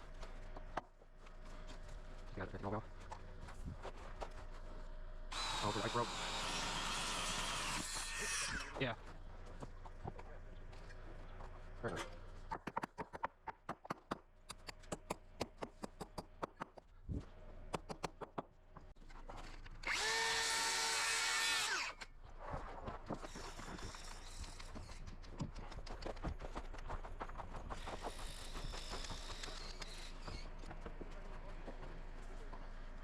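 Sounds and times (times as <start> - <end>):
power drill spinning: 5.3 - 8.8, 19.8 - 22.1, 27.8 - 30.8.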